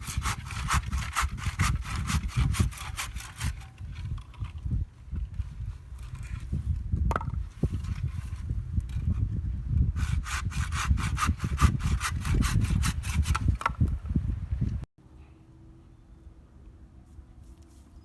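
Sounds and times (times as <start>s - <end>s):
hand saw cutting wood: 0.0s - 4.5s, 10.0s - 13.8s.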